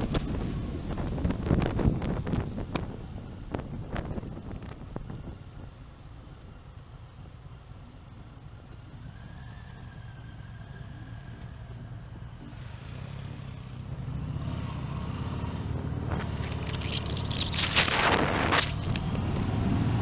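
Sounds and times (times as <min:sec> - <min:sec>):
wind buffeting microphone: 0:00.0 - 0:05.8
motorcycle engine pulling away: 0:08.2 - 0:20.0.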